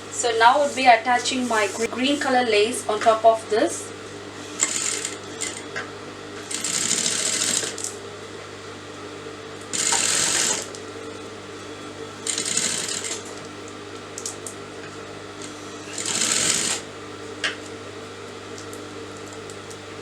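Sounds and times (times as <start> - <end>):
sewing machine stitching: 4.4 - 5.8, 6.4 - 7.9, 9.7 - 10.8, 12.2 - 13.5, 15.4 - 16.9.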